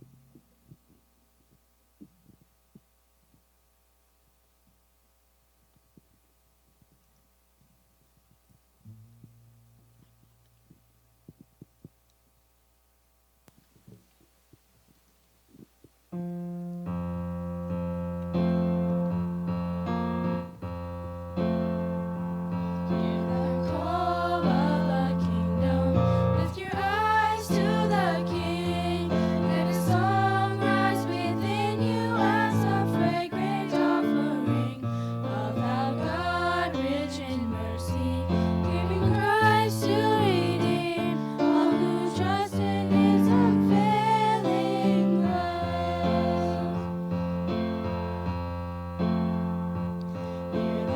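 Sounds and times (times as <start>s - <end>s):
electric keyboard low chords: 16.2s - 50.9s.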